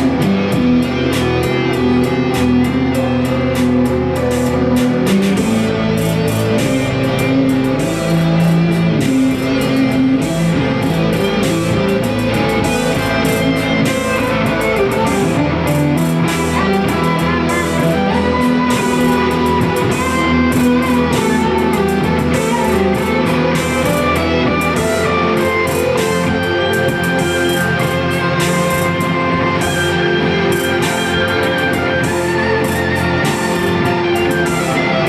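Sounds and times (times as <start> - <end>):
live band with electric guitar: 0.0 - 35.0.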